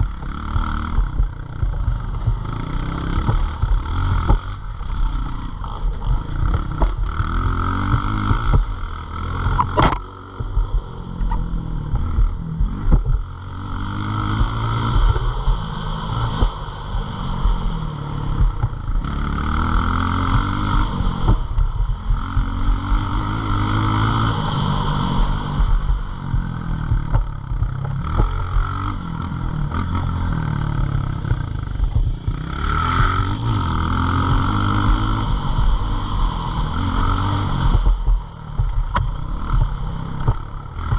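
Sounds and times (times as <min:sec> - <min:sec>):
pit bike engine revving: 0:00.0 - 0:40.9
sharp click: 0:09.5 - 0:10.1.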